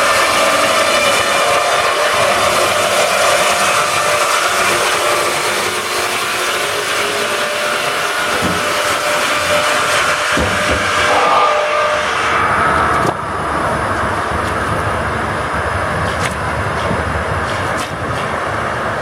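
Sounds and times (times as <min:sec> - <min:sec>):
steady saw whine: 0:00.0 - 0:16.8.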